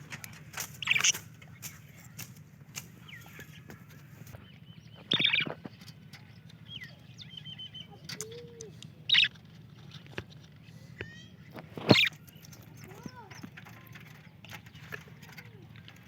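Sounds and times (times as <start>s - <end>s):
budgerigars chirping: 0.6s - 1.8s, 4.9s - 5.6s, 9.0s - 9.4s, 11.8s - 12.2s.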